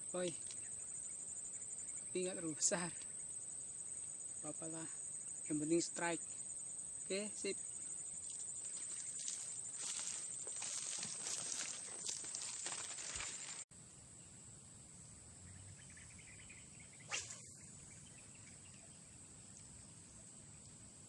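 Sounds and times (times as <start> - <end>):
insects chirring: 0.0 - 21.0
rustling handling noise: 8.6 - 13.6.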